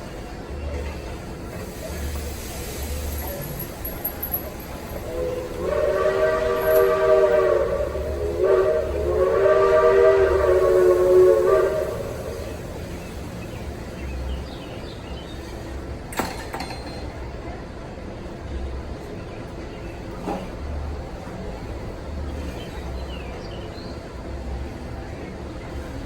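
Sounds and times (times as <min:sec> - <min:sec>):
steam locomotive chime whistle: 0:03.1 - 0:13.3.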